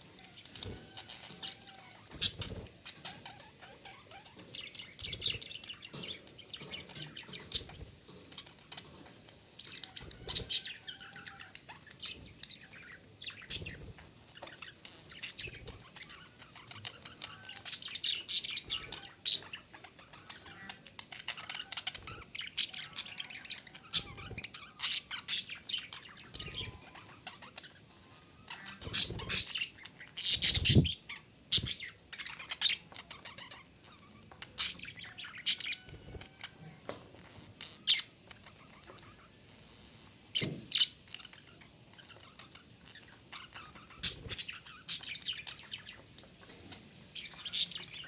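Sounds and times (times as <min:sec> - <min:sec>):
budgerigar chirping and squawking: 0:00.2 - 0:05.5, 0:14.5 - 0:31.9, 0:40.8 - 0:45.8.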